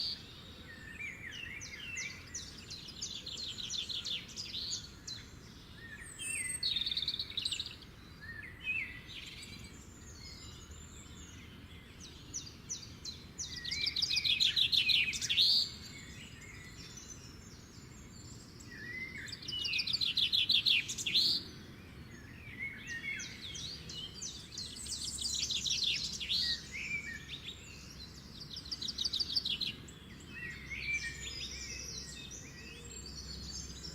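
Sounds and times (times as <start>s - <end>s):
faint background hiss: 0.0s - 33.9s
songbirds singing: 0.0s - 33.9s.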